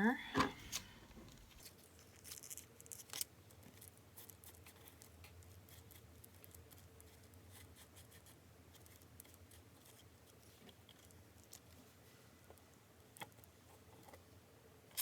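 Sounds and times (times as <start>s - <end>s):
low steady hum: 0.0s - 1.7s
paper rustling: 0.5s - 3.2s.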